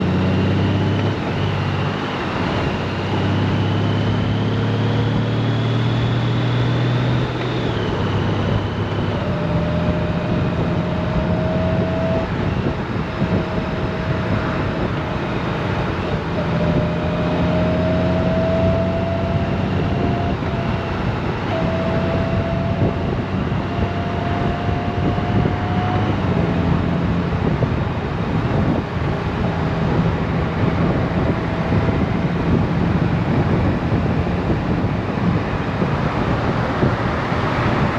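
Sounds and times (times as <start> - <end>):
motorcycle engine running: 0.0 - 37.9
wind and road noise: 0.0 - 37.9
thin whine: 0.2 - 27.6.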